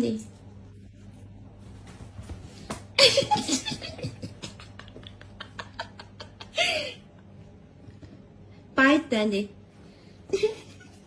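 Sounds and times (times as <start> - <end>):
person laughing: 3.0 - 7.2, 10.3 - 11.0.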